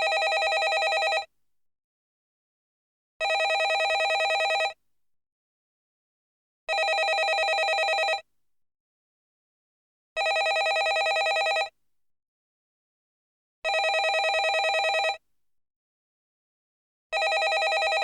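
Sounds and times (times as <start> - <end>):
telephone bell ringing: 0.0 - 1.3, 3.2 - 4.8, 6.7 - 8.2, 10.2 - 11.7, 13.7 - 15.2, 17.2 - 18.0.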